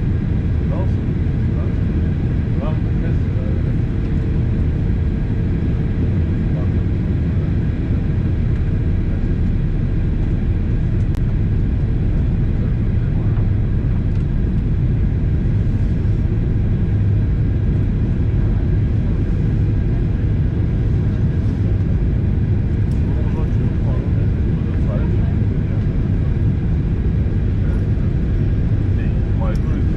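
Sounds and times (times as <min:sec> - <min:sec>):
airliner cabin engine rumble: 0:00.0 - 0:29.9.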